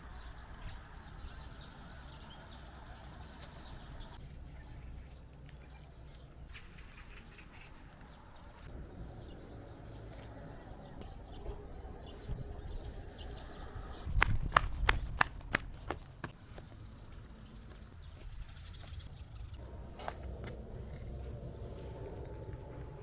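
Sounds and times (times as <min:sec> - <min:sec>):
low rumble: 0:17.6 - 0:23.0.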